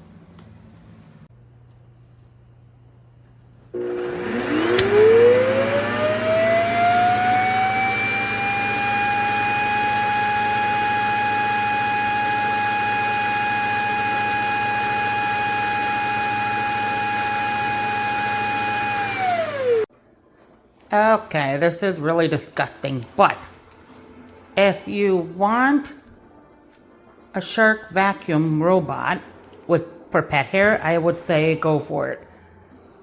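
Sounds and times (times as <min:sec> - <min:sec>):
suction motor whining: 0:03.8 - 0:19.9.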